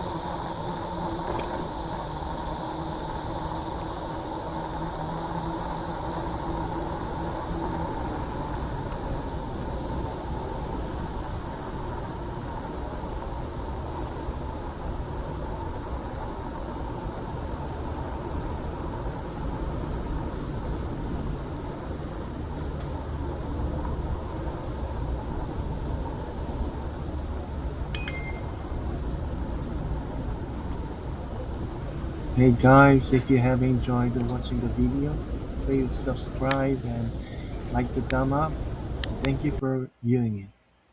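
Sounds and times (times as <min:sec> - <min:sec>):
road traffic rumble: 0:00.0 - 0:40.4
faint high chirps: 0:08.1 - 0:09.3, 0:27.9 - 0:29.4, 0:30.6 - 0:32.7.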